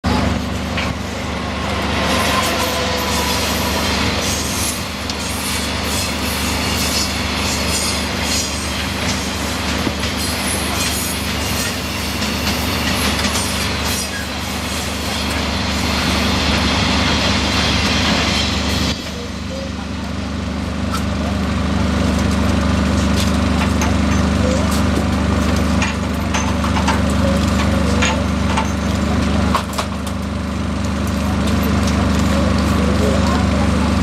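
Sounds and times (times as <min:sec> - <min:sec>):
engine droning: 0:00.0 - 0:34.0.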